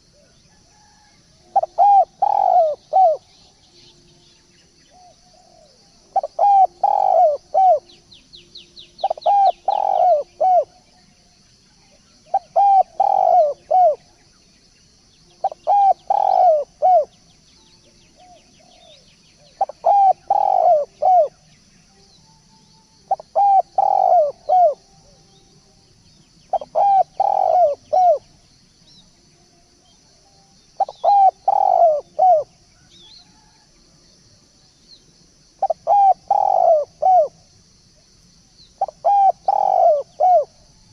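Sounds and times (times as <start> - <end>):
turtledove cooing: 1.6 - 3.2, 5.4 - 7.8, 9.0 - 10.7, 12.3 - 14.0, 15.4 - 17.1, 19.6 - 21.4, 23.1 - 24.8, 26.5 - 28.2, 30.8 - 32.5, 35.6 - 37.4, 38.8 - 40.5
bird high chirps: 30.7 - 33.6.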